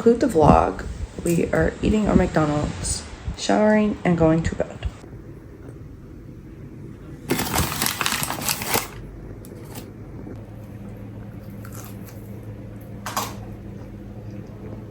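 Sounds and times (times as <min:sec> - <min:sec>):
steady low hum: 0:00.0 - 0:14.9
paper rustling and crinkling: 0:07.3 - 0:09.9.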